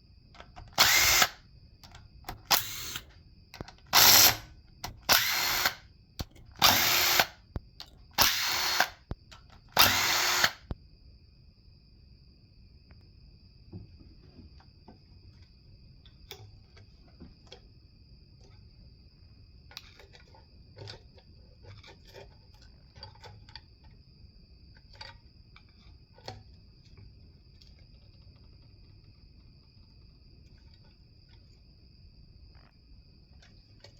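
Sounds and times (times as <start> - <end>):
hand tools clicking and tapping: 6.2 - 7.2.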